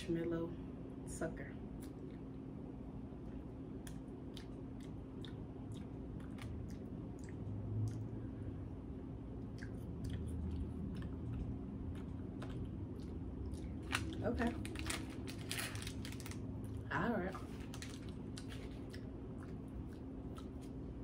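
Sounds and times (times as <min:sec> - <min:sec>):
chewing with mouth clicks: 0:01.8 - 0:02.5, 0:03.7 - 0:08.4, 0:09.3 - 0:15.0, 0:17.4 - 0:21.0.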